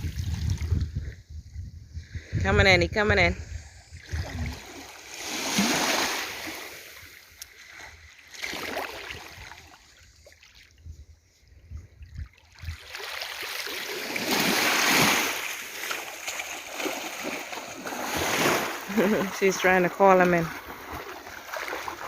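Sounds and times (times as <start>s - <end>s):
small waves washing on beach: 3.6s - 11.3s, 12.2s - 22.0s.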